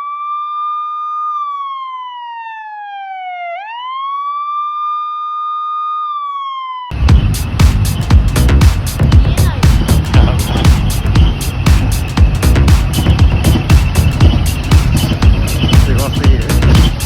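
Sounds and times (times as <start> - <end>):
electronic siren wail: 0.0 - 17.0
dance music with heavy beat: 7.0 - 17.0.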